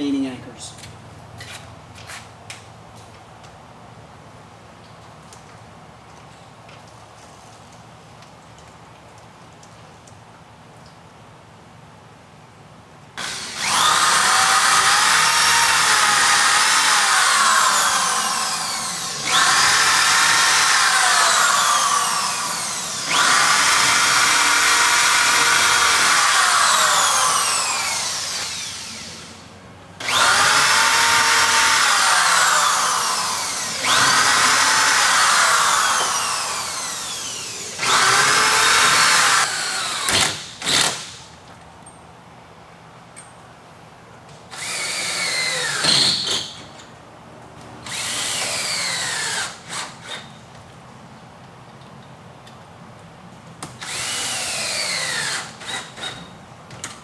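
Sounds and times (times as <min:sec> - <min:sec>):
drill trigger blips: 0:13.2 - 0:29.3, 0:30.0 - 0:40.9
power drill boring holes: 0:13.2 - 0:41.2, 0:44.5 - 0:46.6, 0:47.8 - 0:50.3, 0:53.8 - 0:56.3.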